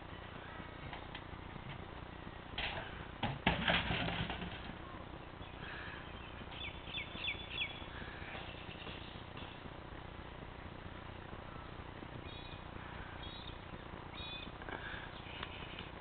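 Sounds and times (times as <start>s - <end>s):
bird whistling downward notes: 13.2s - 14.5s.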